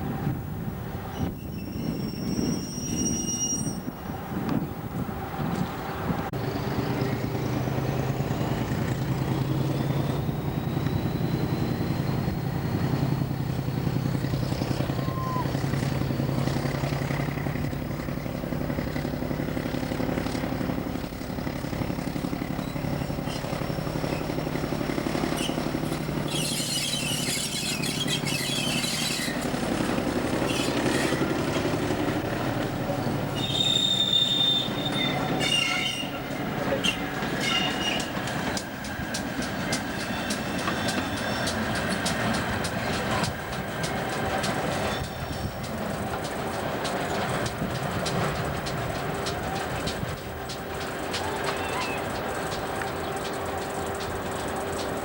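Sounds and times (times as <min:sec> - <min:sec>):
diesel train engine idling: 0:41.5 - 0:55.0.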